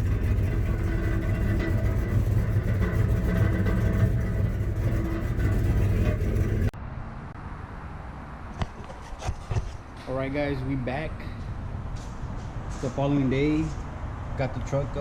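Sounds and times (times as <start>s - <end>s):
truck engine rumbling: 0.0s - 6.8s.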